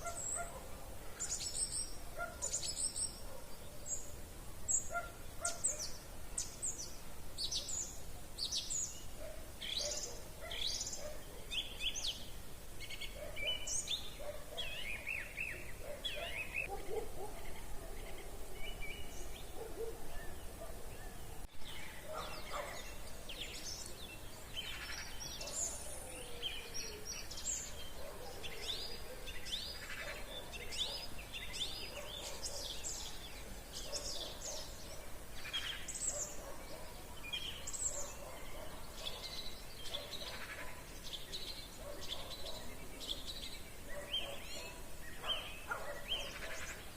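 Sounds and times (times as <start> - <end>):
songbirds chirping and trilling: 0.0 - 46.9.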